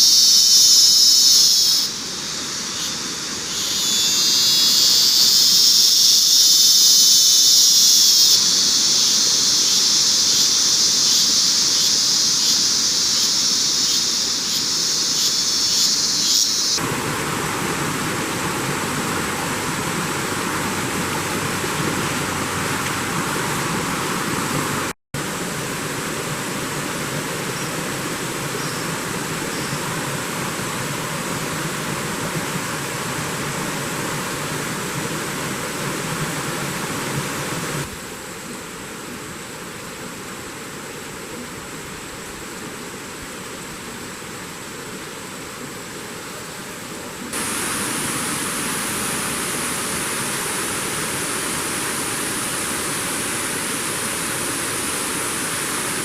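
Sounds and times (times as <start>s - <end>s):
cicada chorus buzzing: 0.0s - 46.4s, 47.3s - 56.0s
steady rushing noise: 13.0s - 38.1s.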